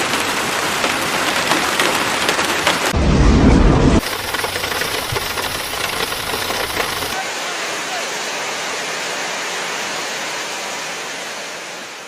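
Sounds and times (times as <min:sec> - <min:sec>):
heavy rain and hail: 0:00.0 - 0:10.0
loud low rumble: 0:03.0 - 0:06.7.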